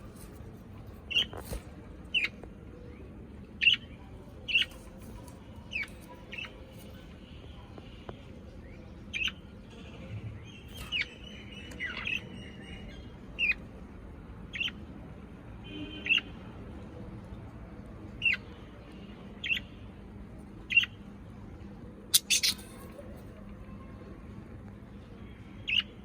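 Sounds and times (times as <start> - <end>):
parrot chirping calls: 22.1 - 22.8.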